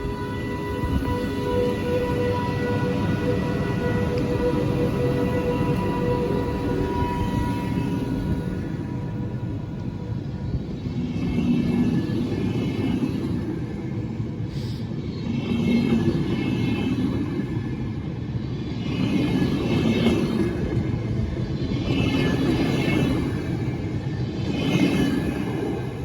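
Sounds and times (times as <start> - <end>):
train rumbling past on rails: 0.0 - 26.0.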